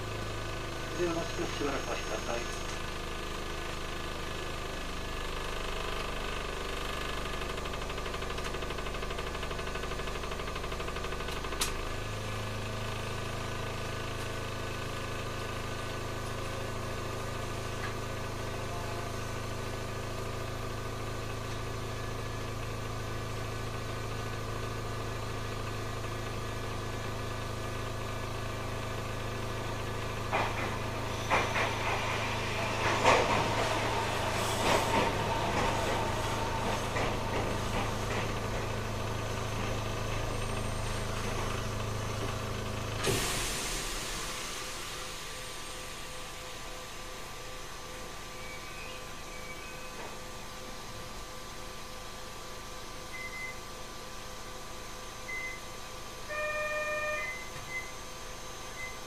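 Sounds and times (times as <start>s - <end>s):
low equipment hum: 15.1s - 43.1s
air hissing: 30.8s - 39.0s, 43.0s - 46.0s.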